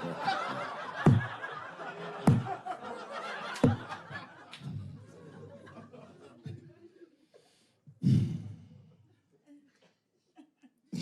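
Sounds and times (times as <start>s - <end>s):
audience laughing: 0.0s - 7.6s.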